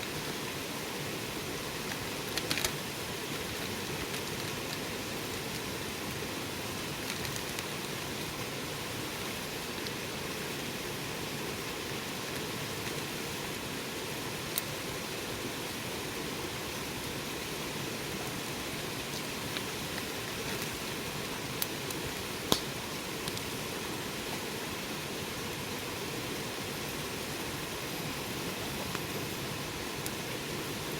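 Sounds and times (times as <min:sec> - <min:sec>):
wood fire hissing: 0:00.0 - 0:30.9
fire crackling pops: 0:01.5 - 0:08.4, 0:14.4 - 0:14.8, 0:18.2 - 0:23.6, 0:29.9 - 0:30.9.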